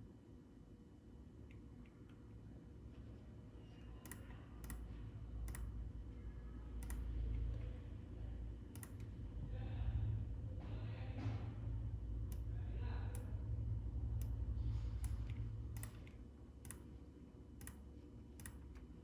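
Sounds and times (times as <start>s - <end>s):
low rumble: 7.1s - 16.3s.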